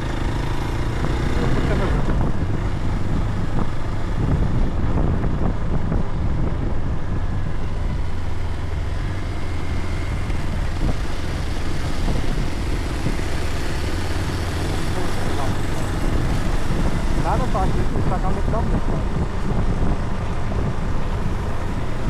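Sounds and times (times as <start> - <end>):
vehicle engine drone: 0.0 - 22.0.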